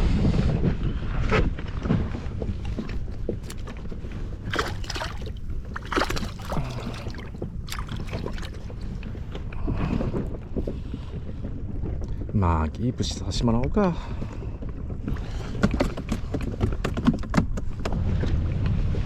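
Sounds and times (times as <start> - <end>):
wind rumbling on microphone: 0.0 - 19.0
water slapping around boat: 1.5 - 12.0, 14.3 - 19.0
knocks and splashes: 2.4 - 9.4.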